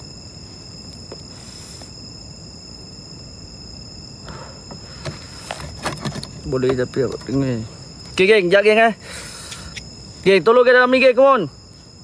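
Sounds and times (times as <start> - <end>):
insects trilling: 0.0 - 12.0
rustling and clicks: 5.0 - 7.4.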